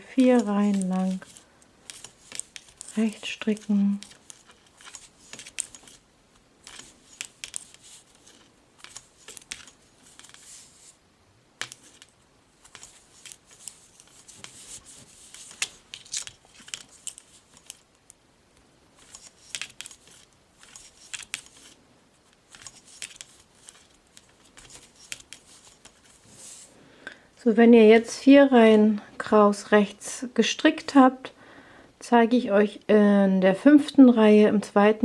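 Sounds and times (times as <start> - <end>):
knitting needles clicking: 0.0 - 10.6, 11.6 - 18.2, 19.0 - 26.0.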